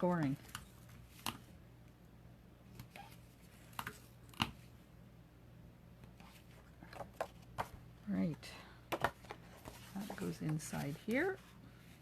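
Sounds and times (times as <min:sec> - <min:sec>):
faint steady hum: 0:00.0 - 0:12.0
paper and card being handled: 0:08.9 - 0:12.0.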